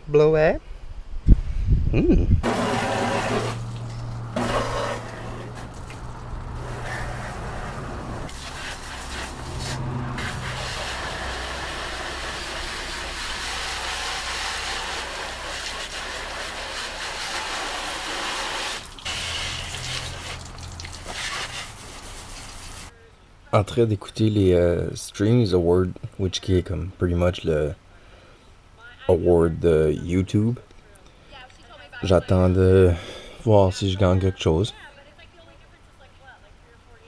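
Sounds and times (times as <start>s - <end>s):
atv engine running: 2.4s - 15.5s.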